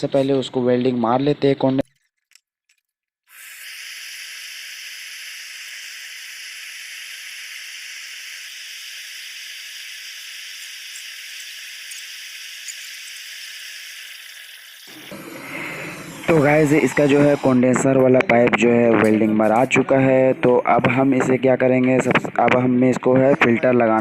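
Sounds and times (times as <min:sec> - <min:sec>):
welding torch flame hissing: 0:03.3 - 0:18.0.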